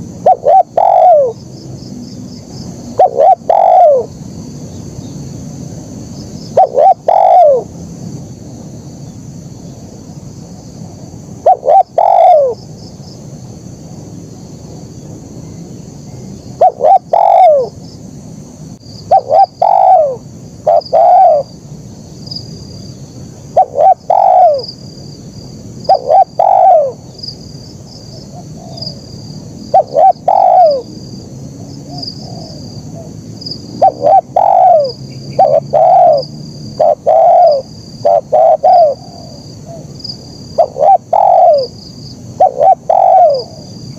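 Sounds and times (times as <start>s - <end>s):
dove cooing: 0.0s - 1.4s, 2.9s - 4.1s, 6.5s - 7.7s, 11.4s - 12.6s, 16.6s - 17.8s, 19.1s - 21.5s, 23.6s - 24.7s, 25.9s - 27.0s, 28.2s - 29.0s, 29.7s - 30.9s, 31.6s - 33.2s, 33.8s - 39.9s, 40.6s - 41.8s, 42.4s - 43.8s.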